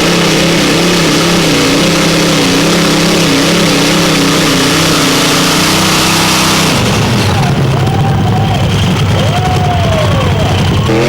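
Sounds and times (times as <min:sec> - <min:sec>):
tractor engine running loud: 0:00.0 - 0:11.0.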